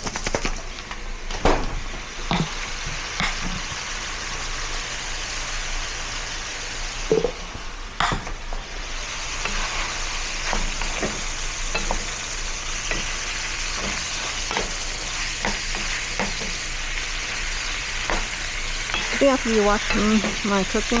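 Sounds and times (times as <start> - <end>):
meat sizzling in a pan: 0.4 - 21.0
spoon scraping and knocking pan: 1.7 - 4.0, 7.1 - 21.0.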